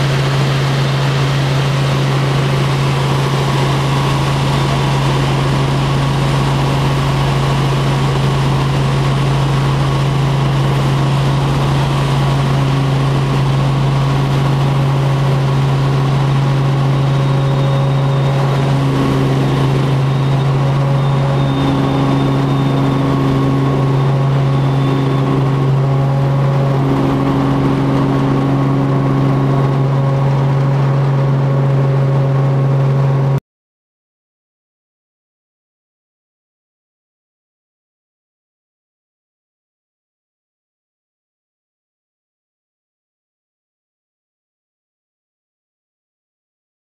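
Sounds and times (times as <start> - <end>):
helicopter engine and rotor drone: 0.0 - 33.4.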